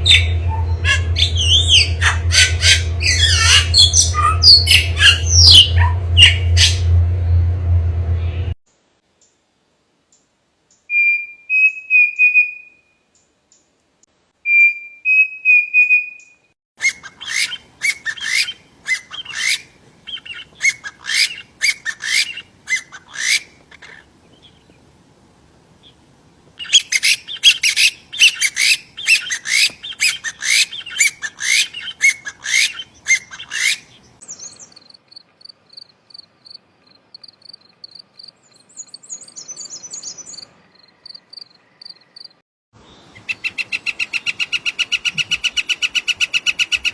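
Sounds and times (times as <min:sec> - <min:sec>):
high fast bird trill: 0:00.0 - 0:06.9, 0:16.8 - 0:24.0, 0:26.6 - 0:34.7
songbirds chirping: 0:16.0 - 0:25.0, 0:25.8 - 0:46.9.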